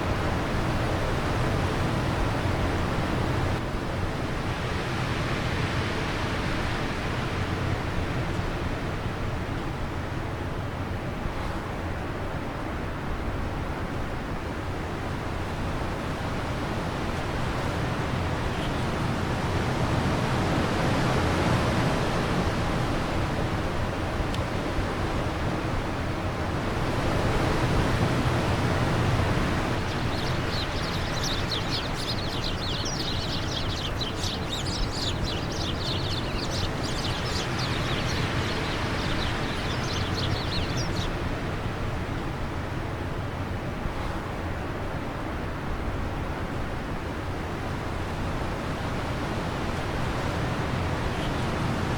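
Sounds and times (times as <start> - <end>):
wind blowing in gusts: 0.0 - 51.9
bird twittering: 29.2 - 41.2.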